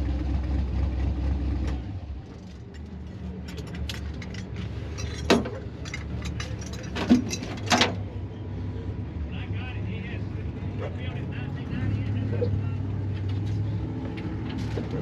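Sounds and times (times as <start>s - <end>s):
car engine idling: 0.0s - 15.0s
light metallic clinks and clicks: 2.3s - 8.0s.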